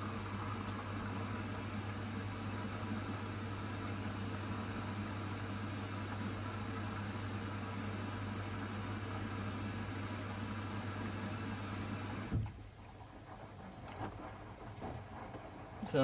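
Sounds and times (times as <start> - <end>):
inlet valve hum: 0.0 - 12.5
water rushing into washing machine: 0.0 - 16.0.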